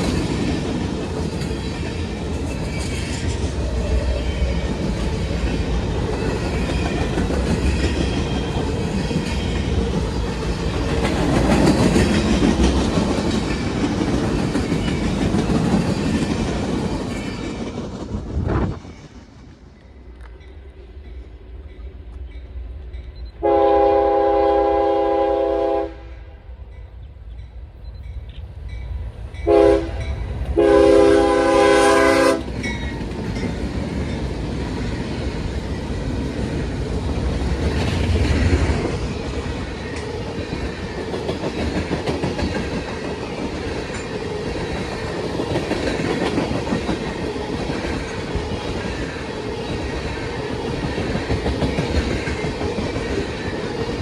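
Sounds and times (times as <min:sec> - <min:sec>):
wheels clickety-clack on rails: 0:00.0 - 0:23.4, 0:28.0 - 0:54.0
train rumbling past: 0:00.0 - 0:54.0
locomotive air horn: 0:23.4 - 0:26.3, 0:29.4 - 0:30.0, 0:30.6 - 0:32.5.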